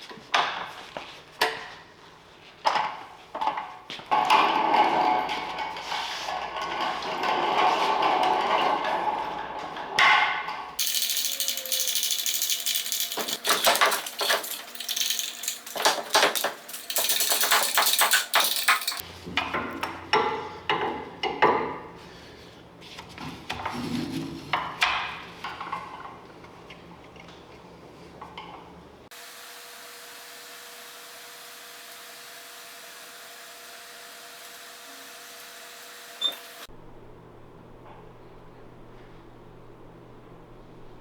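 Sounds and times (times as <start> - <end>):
metal clanks and clatter: 2.7 - 21.8.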